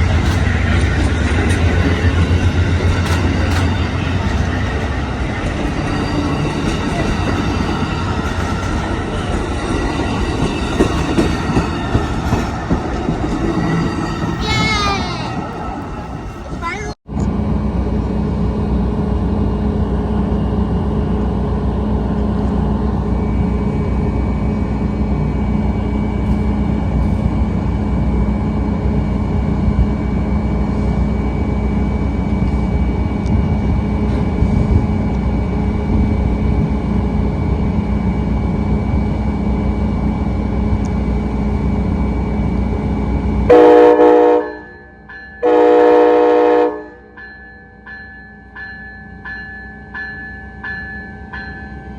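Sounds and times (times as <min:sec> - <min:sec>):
train rumbling: 0:00.0 - 0:51.9
locomotive horn blasts: 0:43.5 - 0:44.7, 0:45.4 - 0:47.2.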